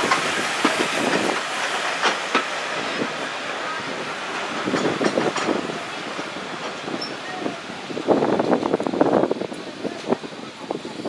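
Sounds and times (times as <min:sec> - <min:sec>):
train wheel clicks: 0:00.0 - 0:03.2, 0:04.3 - 0:07.2
train rolling noise: 0:00.0 - 0:11.0.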